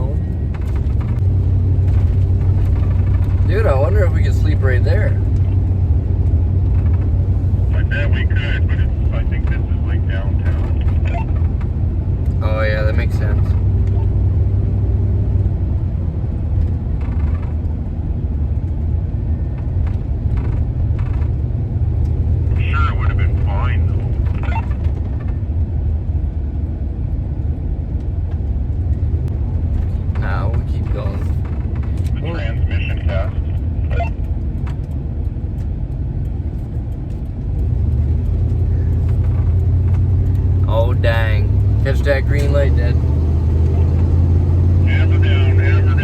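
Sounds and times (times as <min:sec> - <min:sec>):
van engine and road noise: 0:00.0 - 0:46.0.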